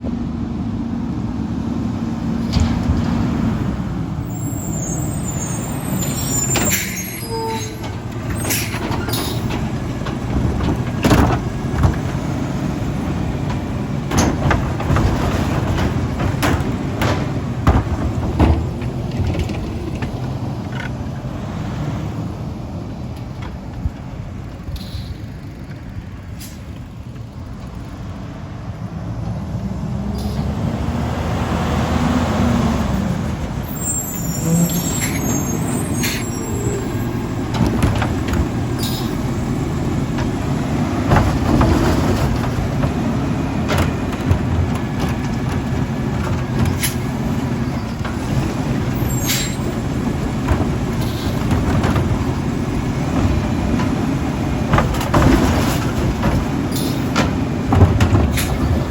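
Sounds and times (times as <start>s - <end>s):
truck diesel engine running: 0.0s - 28.2s, 29.4s - 58.9s
knocks and clanks: 2.4s - 3.8s, 7.7s - 21.1s, 34.5s - 58.9s
air brake squeal and hiss: 4.3s - 7.8s, 24.8s - 25.4s, 33.7s - 37.2s, 38.8s - 39.2s, 49.0s - 49.7s, 51.0s - 51.4s, 56.7s - 57.1s.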